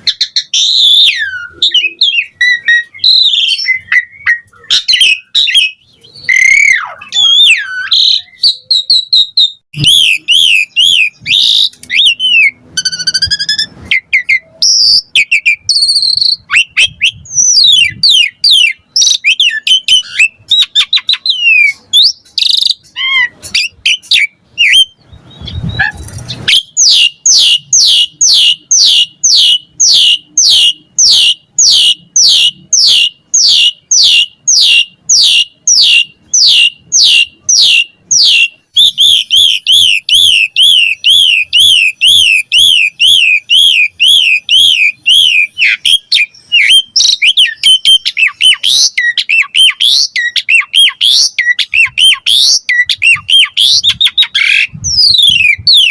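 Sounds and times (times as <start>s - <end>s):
starling singing: 0.0s - 55.9s.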